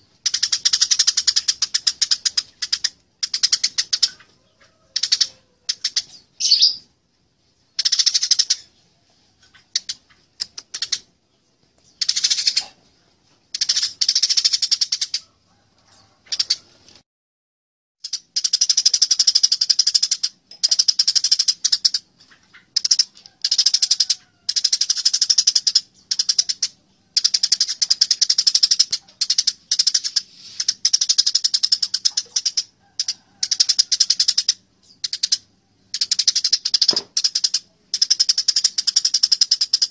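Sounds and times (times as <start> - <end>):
sparrows chirping harshly: 0.0 - 15.2, 24.6 - 39.9.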